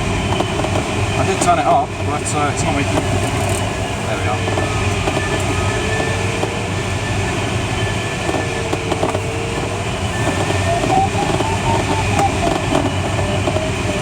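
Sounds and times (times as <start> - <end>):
airflow rushing in cockpit: 0.0 - 14.0
variometer wavering tone: 3.1 - 14.0
short beeps climbing in pitch: 4.3 - 8.7, 10.1 - 14.0.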